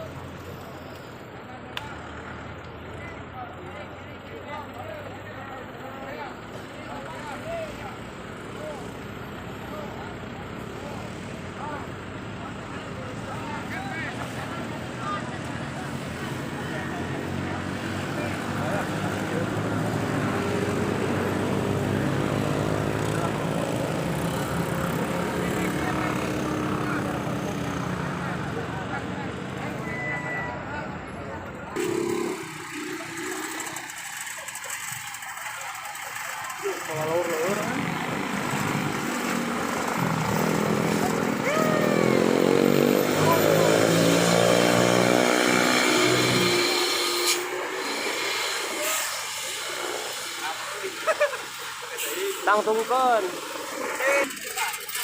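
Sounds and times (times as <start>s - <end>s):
vehicle engine droning: 0.0s - 55.0s
vehicle engine running: 31.4s - 43.4s.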